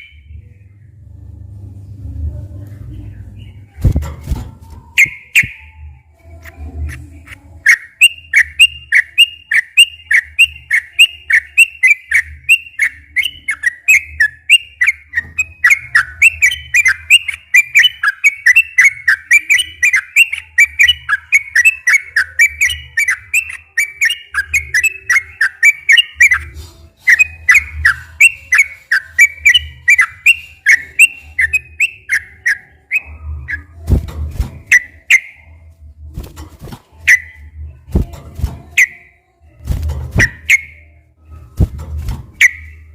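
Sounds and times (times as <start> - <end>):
low rumbling noise: 0.1 - 7.6
bird singing bubbly whistled notes: 5.0 - 6.0, 7.7 - 26.5, 27.1 - 33.7, 37.1 - 37.6, 40.2 - 40.9, 42.4 - 42.9.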